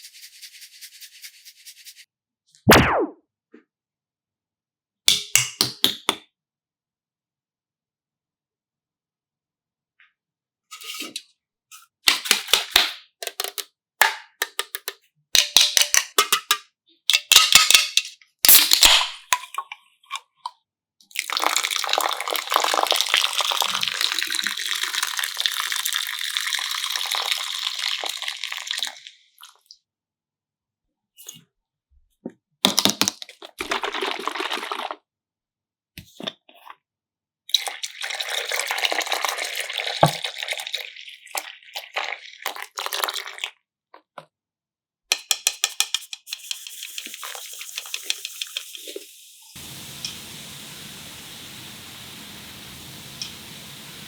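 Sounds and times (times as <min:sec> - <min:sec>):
liquid pouring or fizzing: 0:21.1 - 0:29.6, 0:33.6 - 0:35.0, 0:37.6 - 0:43.6, 0:46.6 - 0:54.0.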